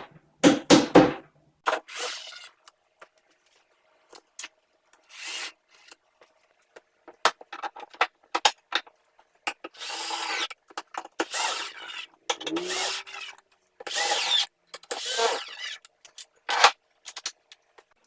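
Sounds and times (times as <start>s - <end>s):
power tool working wood: 12.5s - 13.2s.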